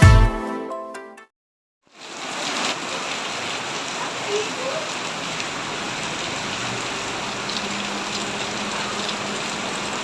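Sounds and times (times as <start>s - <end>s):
heavy rain pouring: 1.9s - 10.0s.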